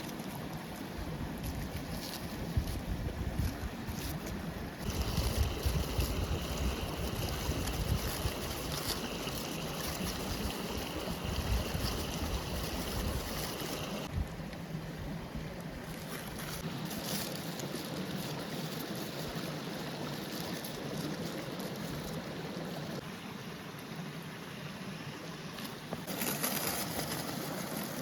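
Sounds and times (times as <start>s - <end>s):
wind rumble on microphone: 0.9s - 15.5s
stream rushing: 4.8s - 14.1s.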